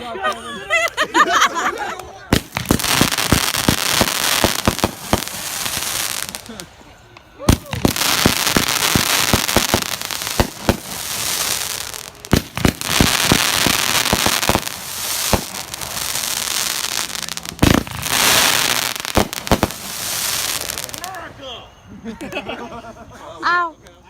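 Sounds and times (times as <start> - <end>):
fireworks bangs: 2.3 - 21.4
fireworks crackling hiss: 2.3 - 21.6.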